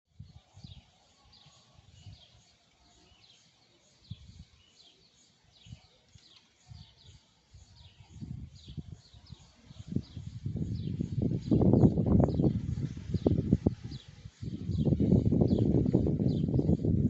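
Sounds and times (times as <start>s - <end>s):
bird chirping: 0.2s - 16.9s
wind buffeting microphone: 7.6s - 17.0s.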